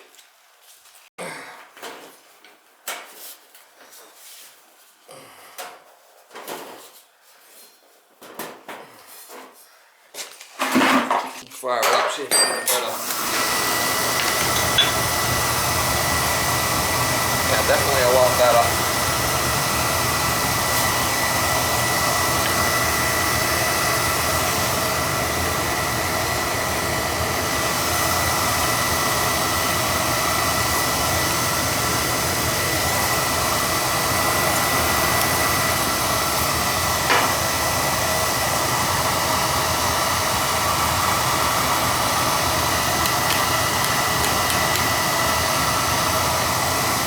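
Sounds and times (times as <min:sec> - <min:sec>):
oil burner roaring: 0:12.9 - 0:47.0
burner click: 0:14.2 - 0:15.3, 0:43.0 - 0:45.0
thin high whine: 0:14.3 - 0:15.5.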